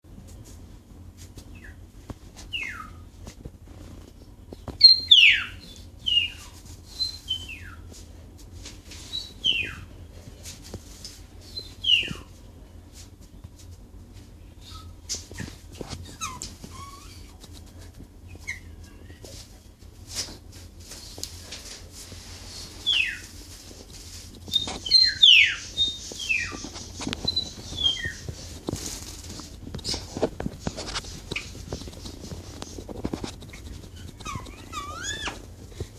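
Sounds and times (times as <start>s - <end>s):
bird whistled calls: 24.6s - 26.6s, 27.2s - 28.2s.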